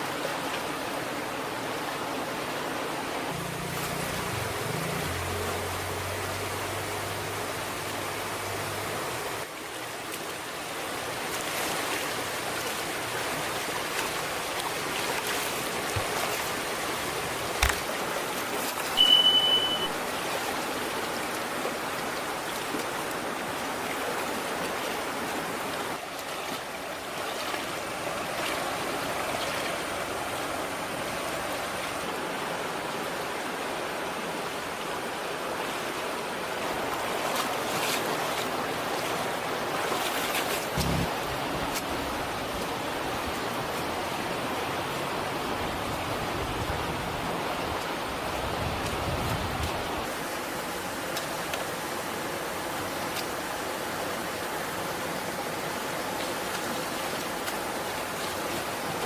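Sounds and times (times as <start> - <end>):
flowing stream water: 0.0 - 59.0
high-pitched beep: 19.0 - 20.0.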